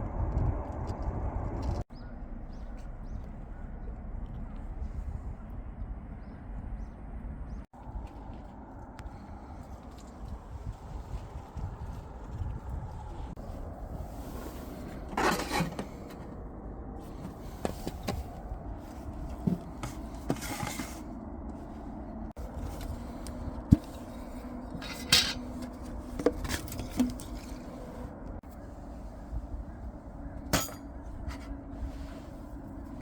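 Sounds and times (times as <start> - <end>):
objects scraping: 14.0 - 16.4, 17.1 - 21.2.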